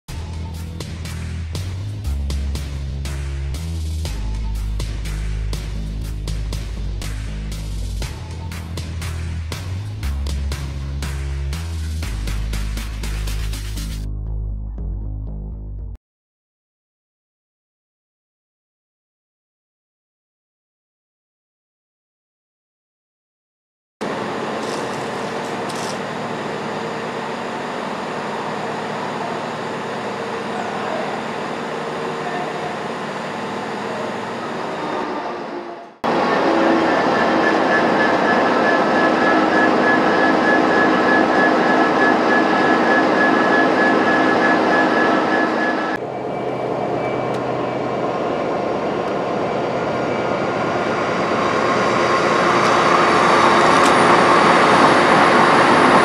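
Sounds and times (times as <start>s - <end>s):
diesel locomotive running: 0.1s - 14.0s, 24.0s - 56.0s
high speed train passing: 24.0s - 56.0s
locomotive passing with high whine: 24.0s - 56.0s.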